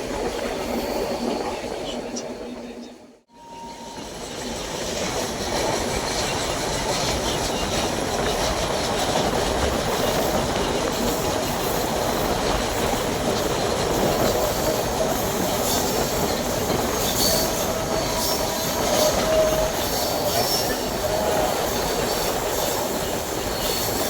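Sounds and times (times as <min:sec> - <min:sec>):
train wheels on rails: 0:03.7 - 0:24.0.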